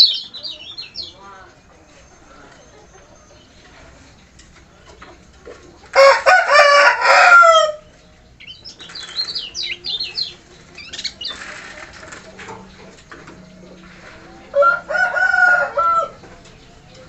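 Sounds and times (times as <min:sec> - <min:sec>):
rooster crowing: 0:06.0 - 0:07.9, 0:14.5 - 0:16.2
songbird high sliding chirps: 0:08.4 - 0:11.8.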